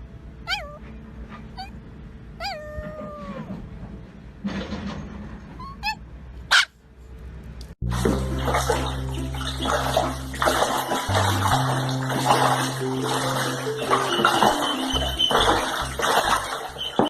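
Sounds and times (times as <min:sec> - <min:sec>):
dog whimpering: 0:00.5 - 0:01.8, 0:02.4 - 0:03.6, 0:05.6 - 0:06.0
background music with bass line: 0:07.8 - 0:16.8.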